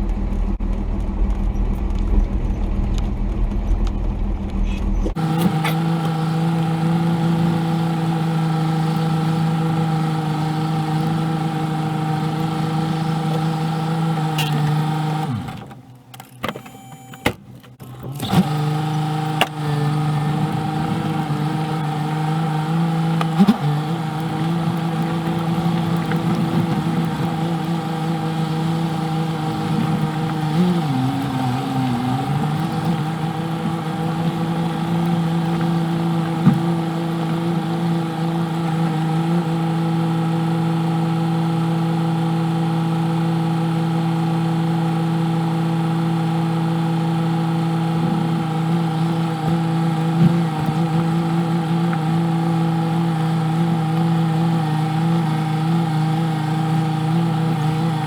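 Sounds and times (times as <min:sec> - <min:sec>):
low rumble: 0:00.0 - 0:05.2
pickup diesel engine running: 0:00.0 - 0:58.0.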